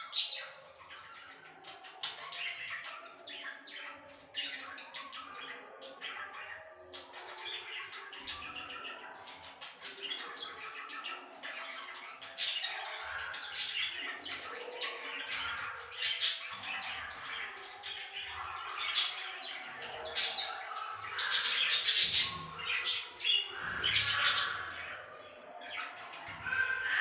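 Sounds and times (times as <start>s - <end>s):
budgerigar chirping and warbling: 18.3s - 25.4s, 26.3s - 27.0s.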